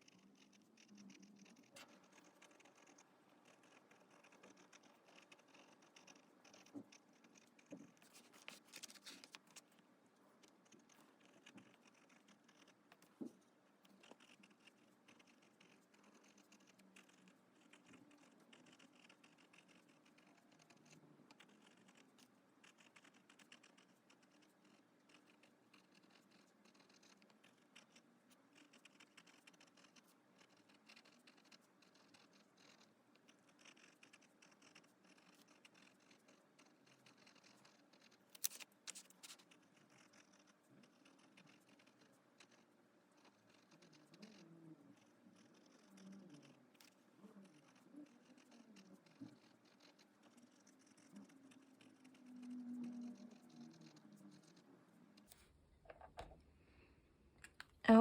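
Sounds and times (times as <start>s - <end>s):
pen nib scratching paper: 0.0s - 56.4s.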